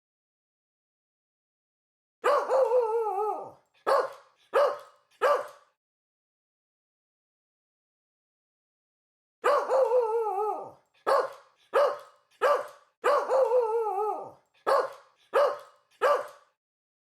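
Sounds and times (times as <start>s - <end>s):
dog barking: 2.2s - 2.8s, 3.4s - 5.8s, 9.4s - 16.6s
dog howling call: 2.2s - 5.4s, 9.4s - 12.0s.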